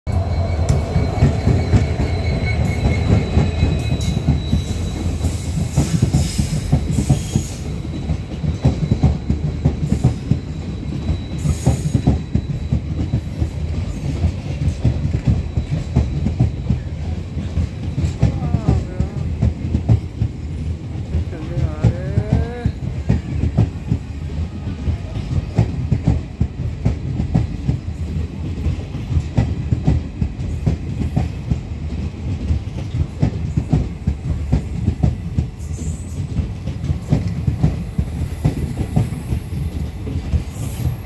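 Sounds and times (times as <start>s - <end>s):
high-pitched wheel squeals: 0.1s - 17.2s
diesel locomotive passing: 0.1s - 41.0s
train wheels clickety-clack: 0.1s - 41.0s.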